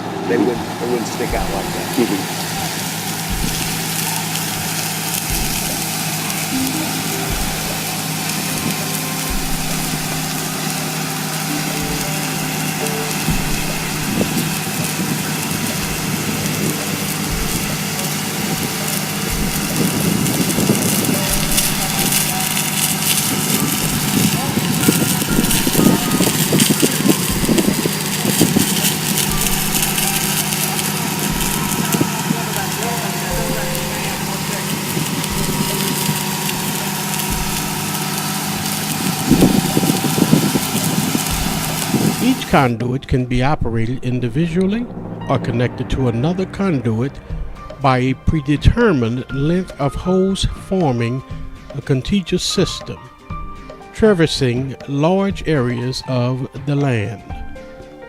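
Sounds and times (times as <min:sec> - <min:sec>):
engine running: 0:00.0 - 0:42.6
water spraying from nozzles: 0:00.0 - 0:42.6
low rumbling: 0:00.0 - 0:49.8
even hiss: 0:00.0 - 0:58.0.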